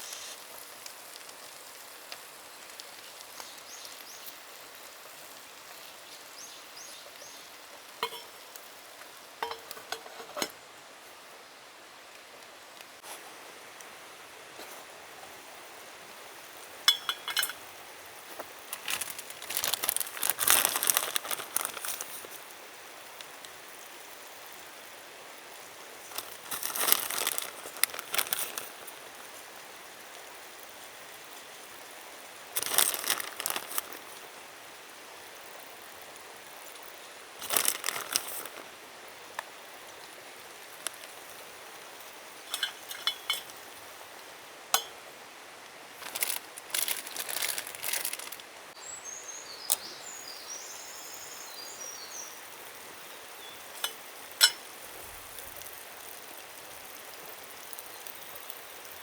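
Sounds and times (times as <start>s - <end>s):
light clink: 16.9s - 17.6s, 42.5s - 43.6s, 44.8s - 45.0s, 53.8s - 54.7s
crinkling and rustling: 18.3s - 22.4s, 26.0s - 29.3s, 32.6s - 34.3s, 37.4s - 38.8s, 40.7s - 41.4s, 42.4s - 43.6s, 46.0s - 48.5s.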